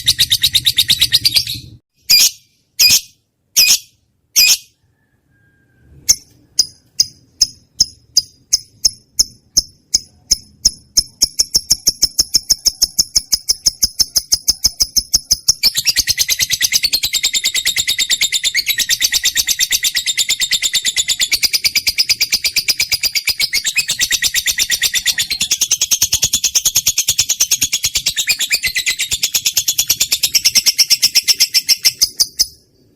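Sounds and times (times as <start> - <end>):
lovebird chirping: 0.0 - 32.9.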